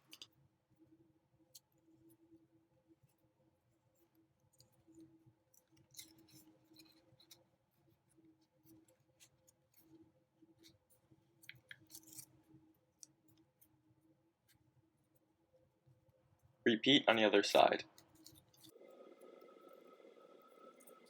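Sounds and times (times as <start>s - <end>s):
low steady hum: 16.7s - 21.0s.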